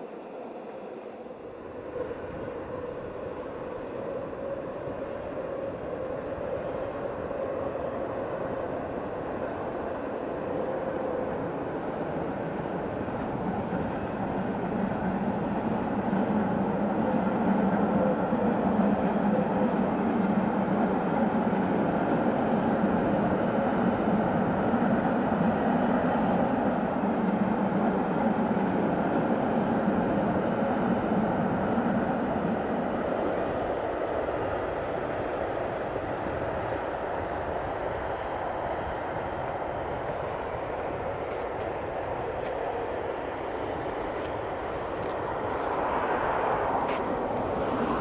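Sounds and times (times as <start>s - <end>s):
train running on rails: 0.0s - 48.0s.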